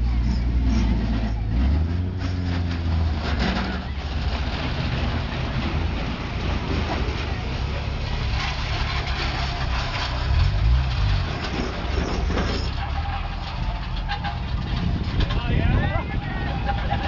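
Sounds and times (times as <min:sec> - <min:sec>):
car engine deep exhaust rumble: 0:14.1 - 0:17.0.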